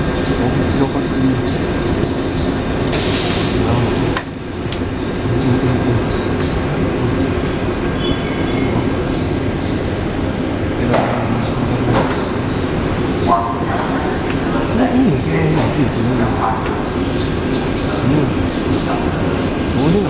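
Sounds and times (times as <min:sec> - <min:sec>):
electric train hum: 0:00.0 - 0:20.0
high whine: 0:00.0 - 0:20.0
hiss of air: 0:02.9 - 0:04.2.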